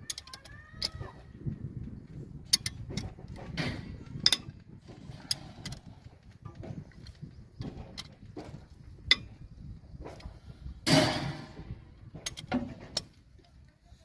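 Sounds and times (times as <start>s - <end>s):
tools and metal parts clinking: 0.0s - 1.1s, 2.4s - 11.3s, 12.1s - 13.2s.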